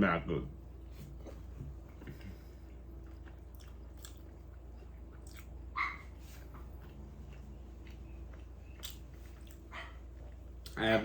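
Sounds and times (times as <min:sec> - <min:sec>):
steady low hum: 0:00.0 - 0:11.0
chewing and mouth clicks: 0:02.0 - 0:10.8
faint dog bark: 0:05.7 - 0:06.2, 0:09.7 - 0:10.1.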